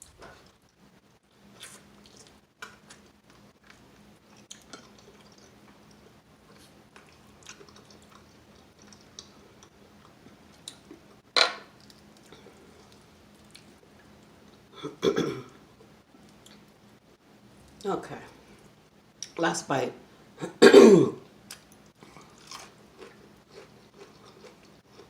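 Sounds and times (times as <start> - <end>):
chewing crispy chicken: 1.5 - 11.1, 11.7 - 14.7, 21.5 - 25.0.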